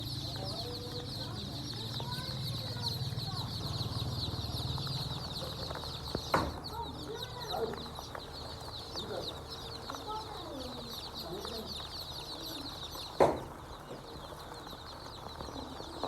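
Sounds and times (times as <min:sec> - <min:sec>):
chickens clucking: 0:00.0 - 0:16.0
chicks peeping: 0:00.0 - 0:16.0
sharp knock: 0:13.2 - 0:13.5.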